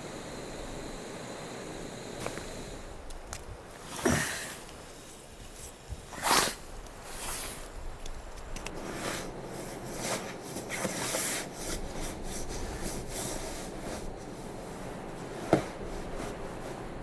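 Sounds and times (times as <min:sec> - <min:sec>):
fabric rustling and rubbing: 0:03.8 - 0:07.9, 0:08.7 - 0:17.0
small clicks: 0:08.0 - 0:08.8.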